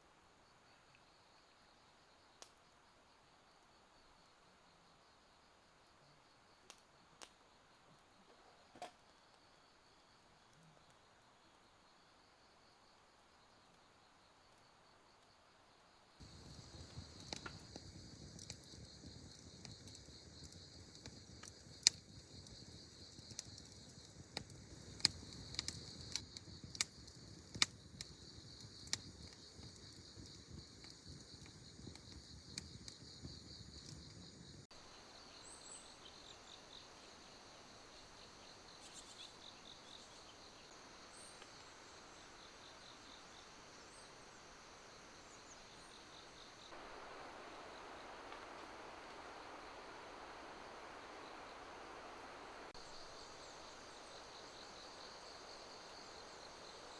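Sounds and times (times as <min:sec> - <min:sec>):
crickets chirping: 0:00.2 - 0:56.9
campfire popping and snapping: 0:16.2 - 0:34.7
high insect chirps: 0:16.2 - 0:48.5, 0:50.5 - 0:56.9.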